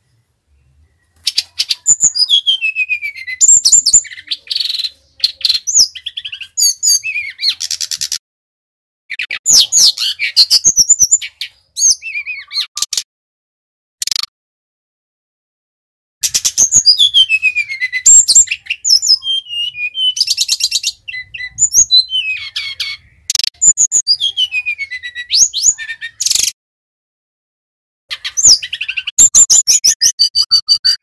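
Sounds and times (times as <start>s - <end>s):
flycatcher singing: 1.0s - 8.2s, 16.2s - 26.5s.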